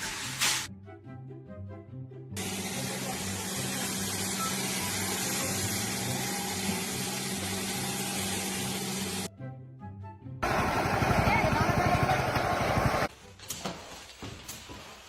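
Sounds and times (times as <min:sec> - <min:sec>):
machine humming: 0:02.4 - 0:09.3, 0:10.4 - 0:13.1.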